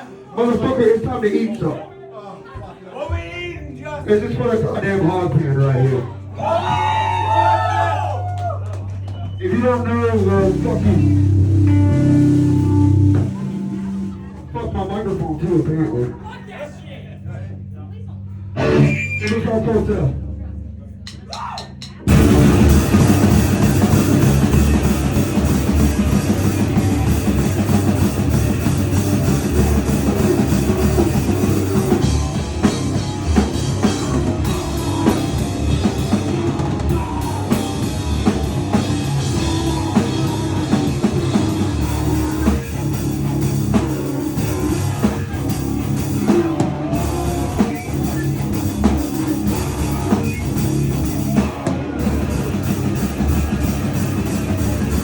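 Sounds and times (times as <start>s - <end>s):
live band playing loudly: 9.0s - 14.8s, 21.8s - 55.0s.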